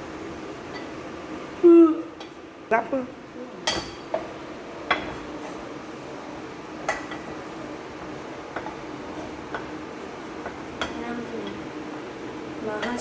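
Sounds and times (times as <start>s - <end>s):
faint steady hum: 0.0s - 13.0s
utensils clinking against dishes: 3.6s - 4.3s, 12.6s - 13.0s.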